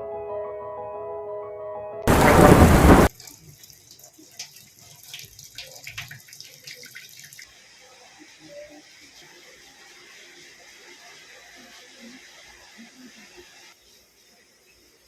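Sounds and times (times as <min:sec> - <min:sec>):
sudden loud rush of noise: 0:02.1 - 0:03.1
water drips and ticks: 0:02.1 - 0:07.8
faint rain: 0:02.1 - 0:15.0.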